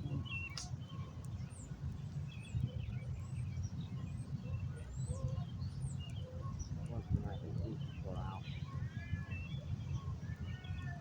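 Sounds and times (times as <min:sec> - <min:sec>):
wind on microphone: 0:00.0 - 0:05.8.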